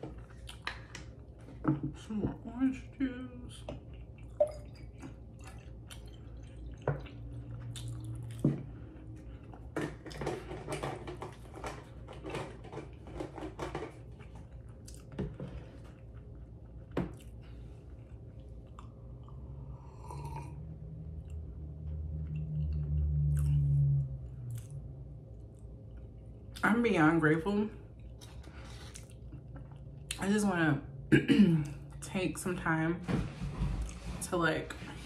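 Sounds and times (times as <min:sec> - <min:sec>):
steady low hum: 0:00.0 - 0:35.0
close chewing with mouth clicks: 0:00.2 - 0:01.1, 0:03.8 - 0:09.6.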